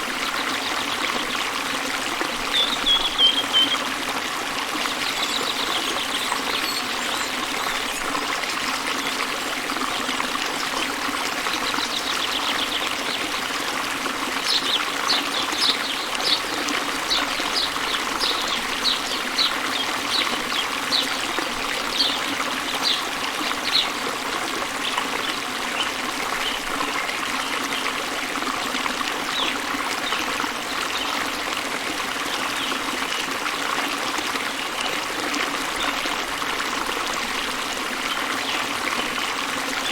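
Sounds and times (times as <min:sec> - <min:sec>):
bird chirping: 0:02.5 - 0:03.8, 0:14.5 - 0:21.3
waterfall rushing: 0:10.9 - 0:27.5.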